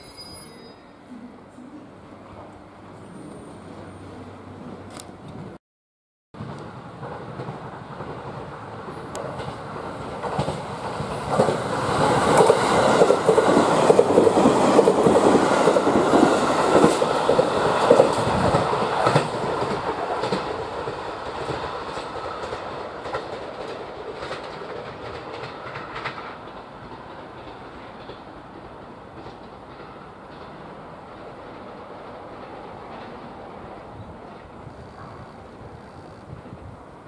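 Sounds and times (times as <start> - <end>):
train wheels clacking over rail joints: 6.4 - 33.4.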